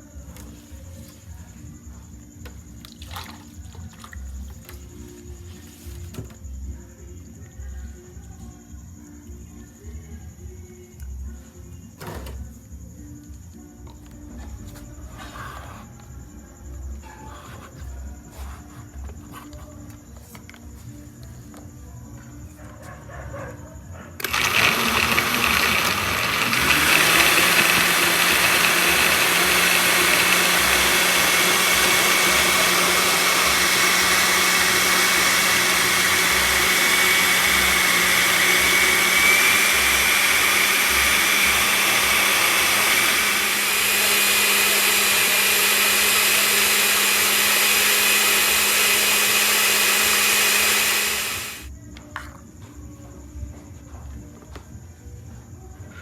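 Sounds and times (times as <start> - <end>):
electric blender motor running: 24.2 - 51.7.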